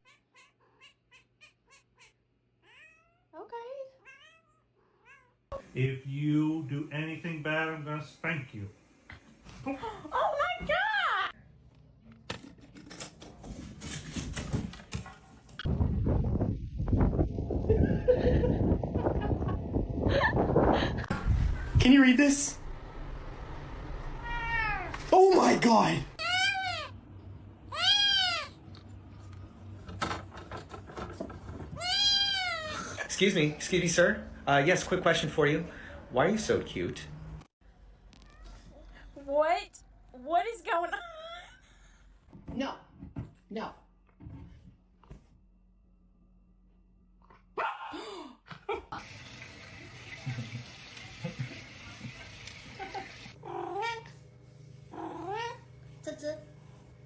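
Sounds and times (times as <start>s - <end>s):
cat meowing: 0.0s - 3.3s, 4.0s - 5.4s, 24.2s - 25.0s, 31.8s - 32.7s.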